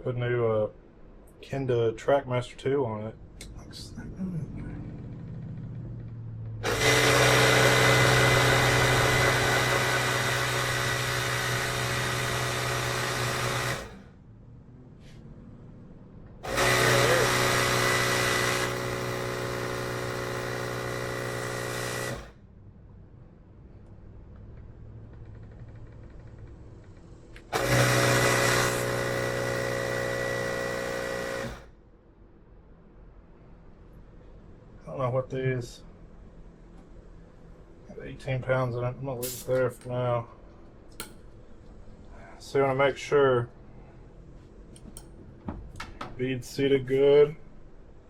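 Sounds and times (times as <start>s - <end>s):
air compressor running: 6.6s - 14.2s, 16.4s - 22.4s, 27.4s - 31.8s.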